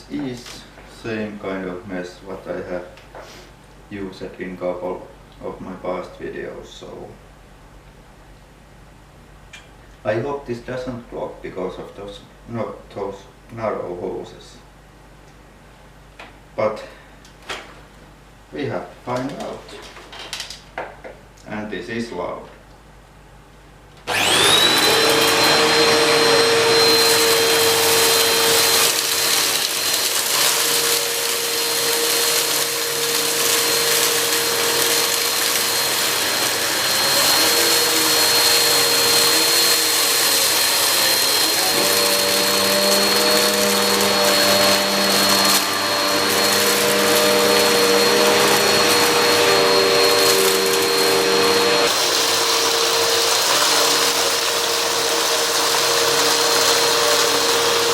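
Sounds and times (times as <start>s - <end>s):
vacuum cleaner running: 24.0s - 57.9s.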